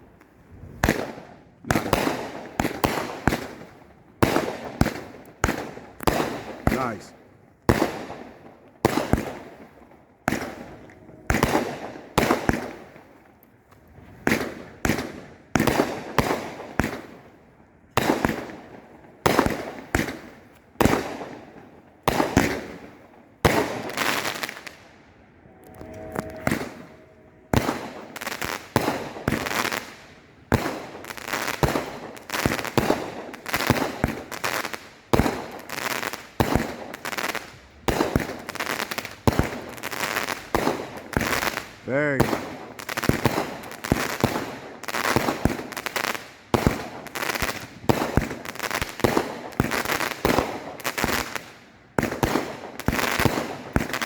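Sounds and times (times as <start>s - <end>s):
fireworks banging: 7.7s - 13.3s, 17.9s - 54.0s.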